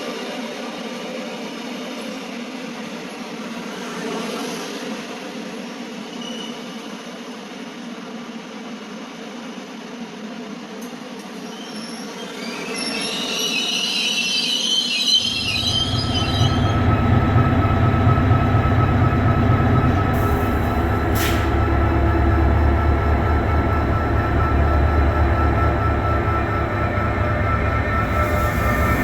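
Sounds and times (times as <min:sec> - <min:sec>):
train wheels squealing: 0:00.0 - 0:07.6, 0:10.8 - 0:29.0
train heavy low rumble: 0:15.2 - 0:29.0.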